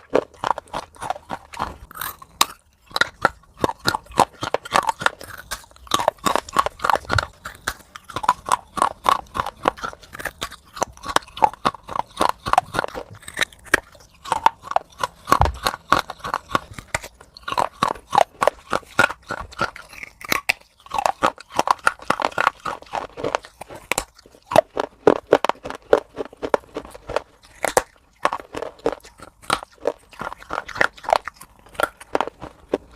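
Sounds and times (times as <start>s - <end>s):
chewing crunchy food: 0.0s - 32.9s.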